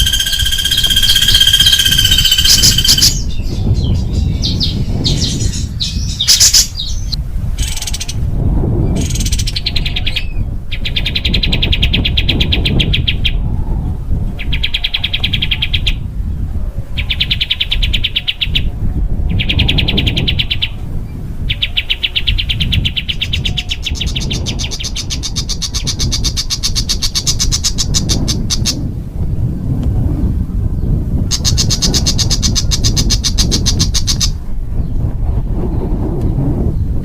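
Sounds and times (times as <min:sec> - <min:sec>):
songbird rattling trills: 0:00.0 - 0:08.2, 0:21.4 - 0:28.8, 0:31.3 - 0:34.4
steady low rumble: 0:00.0 - 0:37.0.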